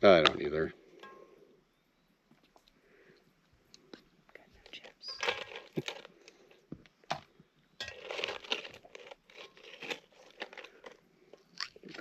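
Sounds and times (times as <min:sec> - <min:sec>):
tortilla chips crunching: 0:05.1 - 0:06.6, 0:07.8 - 0:12.0.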